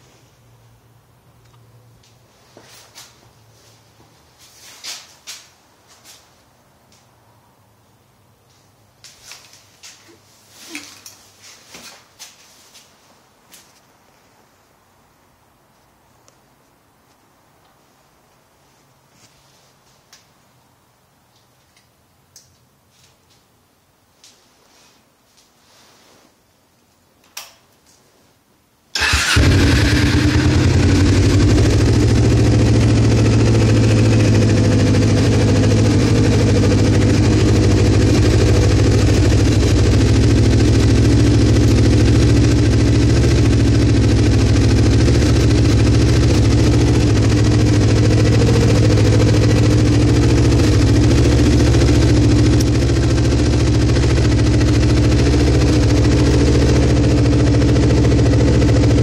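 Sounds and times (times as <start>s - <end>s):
motorcycle engine starting and idling: 29.0s - 59.0s.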